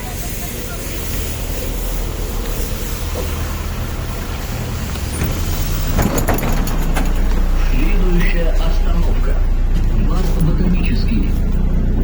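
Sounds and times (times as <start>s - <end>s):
bus engine hum: 0.0s - 12.0s
road and cabin noise: 0.0s - 12.0s.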